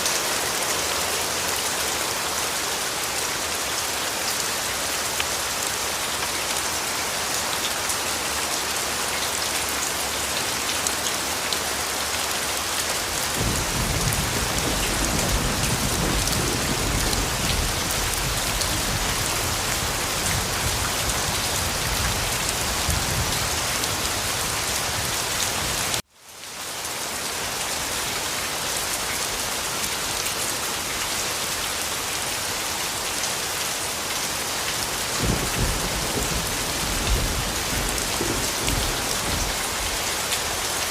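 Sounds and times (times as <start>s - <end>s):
heavy rain falling: 0.0s - 40.9s
thunder rumbling: 13.4s - 23.8s, 35.2s - 40.0s.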